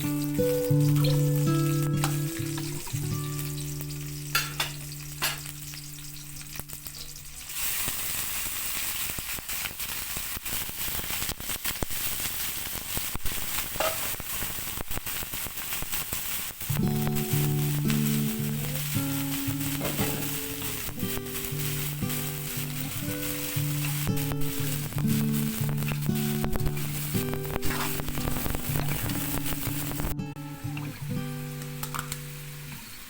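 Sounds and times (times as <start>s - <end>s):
soft background music: 0.0s - 7.2s, 16.8s - 33.0s
food sizzling in hot oil: 0.0s - 33.0s.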